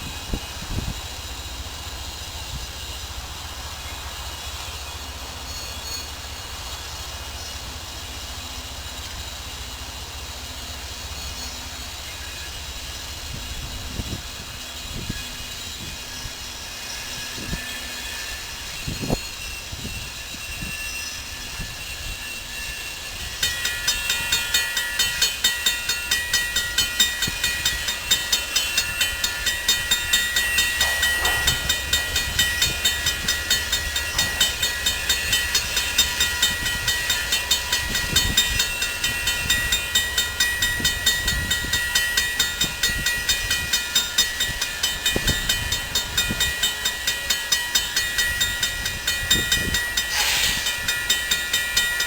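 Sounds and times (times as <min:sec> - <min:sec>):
train passing rumble: 0:00.0 - 0:52.0
rapid high ringing: 0:20.2 - 0:52.0.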